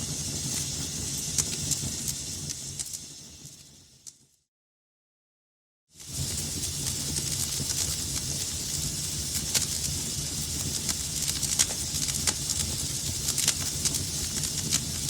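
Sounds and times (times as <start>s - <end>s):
fire crackling and popping: 0.0s - 4.4s, 5.9s - 15.0s
wood fire rumbling and hissing: 0.0s - 4.4s, 5.9s - 15.0s.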